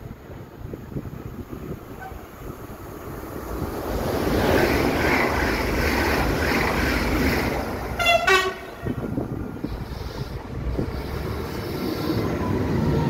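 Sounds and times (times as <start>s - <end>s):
train rushing past: 0.0s - 13.0s
wind on the microphone: 0.0s - 13.0s
two-tone train horn: 8.0s - 9.0s.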